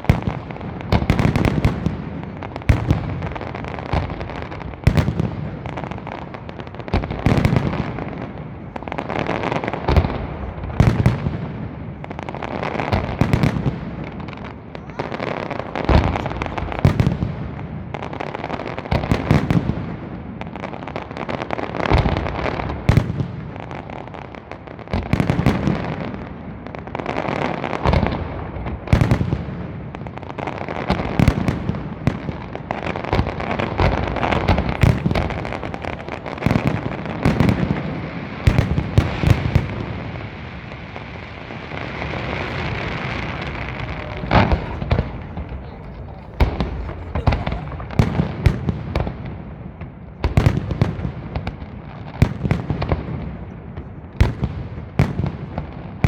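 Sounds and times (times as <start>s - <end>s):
firework crackle: 0.0s - 56.0s
firework shells bursting: 41.2s - 48.7s.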